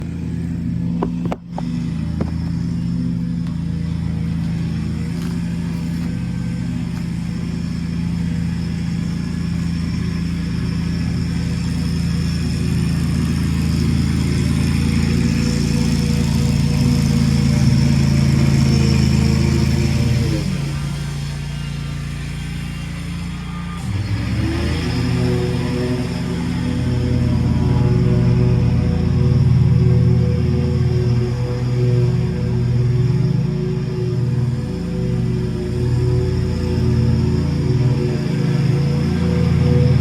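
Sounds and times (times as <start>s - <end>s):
lawnmower engine running: 0.0s - 40.0s.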